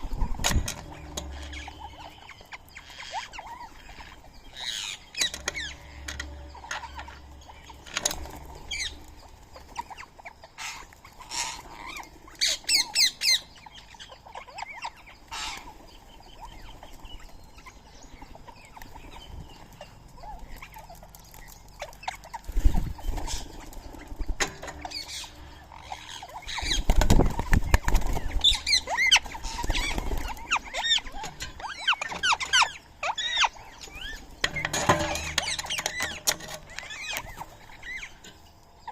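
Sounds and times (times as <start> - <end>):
birds chirping and squawking: 0.0 - 38.9
wings flapping: 21.8 - 25.0, 26.1 - 32.7.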